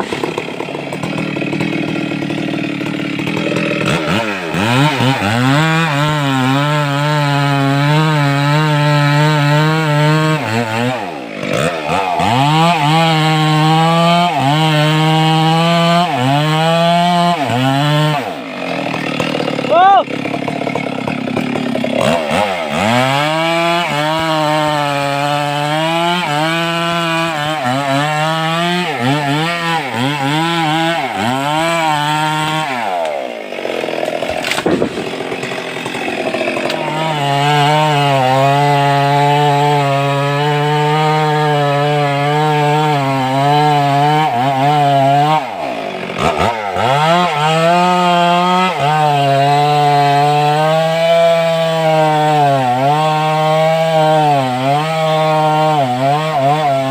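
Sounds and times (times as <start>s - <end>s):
chainsaw cutting wood: 0.0s - 56.9s.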